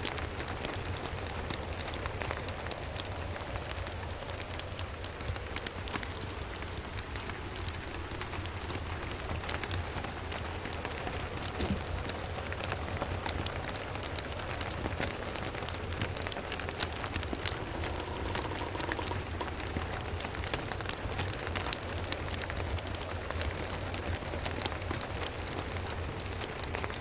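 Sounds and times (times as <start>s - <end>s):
rain hissing and pattering: 0.0s - 27.0s.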